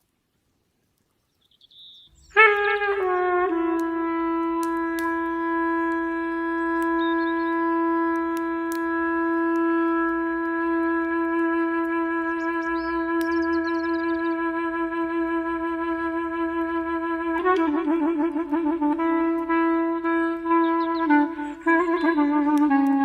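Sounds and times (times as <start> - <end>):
faint bird chirps: 1.0 - 2.4, 6.6 - 7.6, 12.3 - 14.3
clarinet notes: 2.2 - 23.0.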